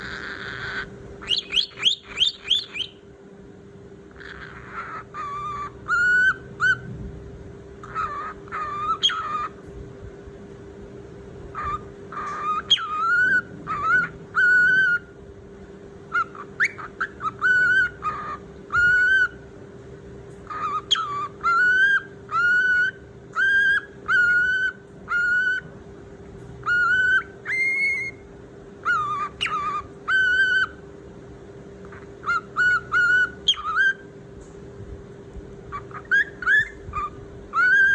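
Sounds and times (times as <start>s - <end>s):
pet bird whistling calls: 0.0s - 3.0s, 4.1s - 6.9s, 7.8s - 9.6s, 11.5s - 15.1s, 16.1s - 19.4s, 20.4s - 25.7s, 26.6s - 30.8s, 31.8s - 34.1s, 35.7s - 37.9s.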